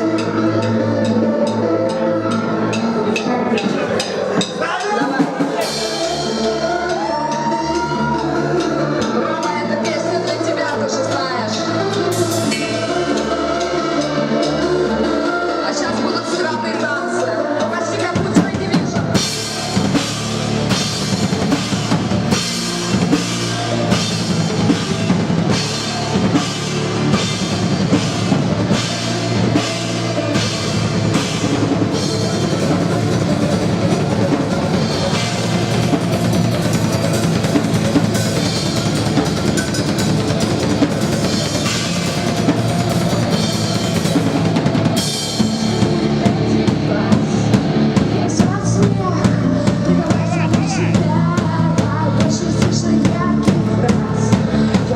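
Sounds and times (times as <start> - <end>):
cymbals: 0.0 - 16.5, 17.2 - 49.2
live rock band playing: 0.0 - 54.9
bass drum and snare beat: 18.2 - 54.9.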